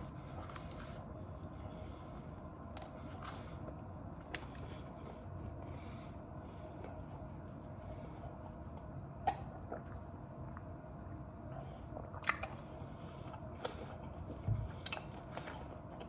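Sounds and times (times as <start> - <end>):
person chewing: 0.0 - 5.8, 6.5 - 10.0, 12.0 - 16.0
low hum: 0.0 - 16.0.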